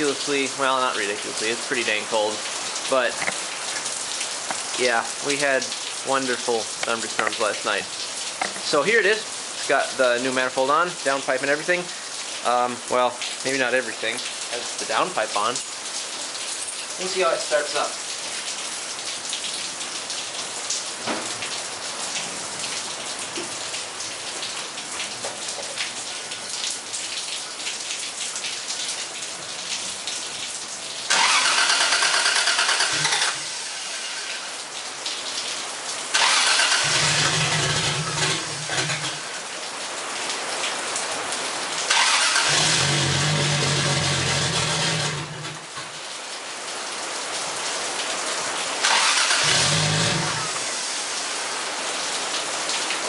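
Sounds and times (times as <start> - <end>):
rain falling: 0.0 - 53.0
car engine cranking: 3.1 - 3.9, 31.1 - 33.8, 36.2 - 39.3, 41.9 - 45.8, 48.8 - 50.7.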